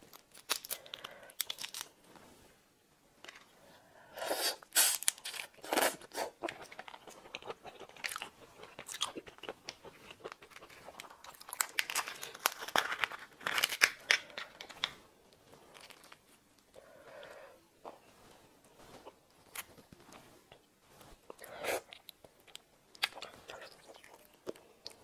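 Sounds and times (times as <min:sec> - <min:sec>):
wet crunching and chewing: 0:04.8 - 0:15.0, 0:21.3 - 0:25.0.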